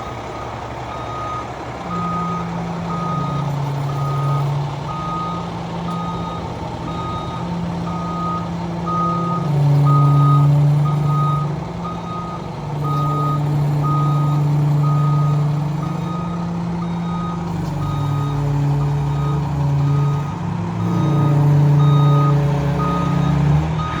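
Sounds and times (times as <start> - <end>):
diesel truck engine revving: 0.0 - 24.0
reversing alarm beeps: 0.4 - 24.0.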